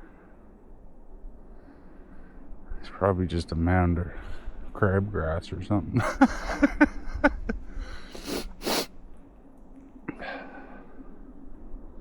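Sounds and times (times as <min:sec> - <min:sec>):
sharp blasts of breath: 0:08.0 - 0:08.9.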